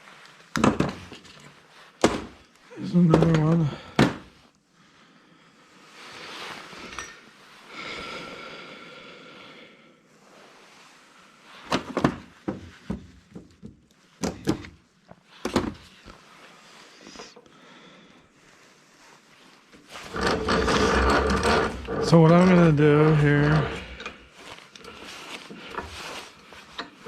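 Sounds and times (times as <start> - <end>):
metal scraping and squealing: 20.0 - 24.2.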